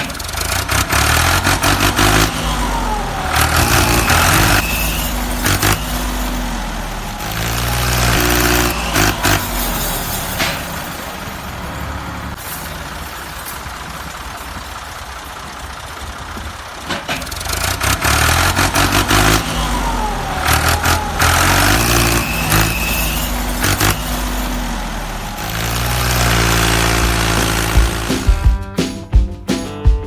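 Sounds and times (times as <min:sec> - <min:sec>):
motor running and revving: 0:00.2 - 0:10.4, 0:17.4 - 0:28.4.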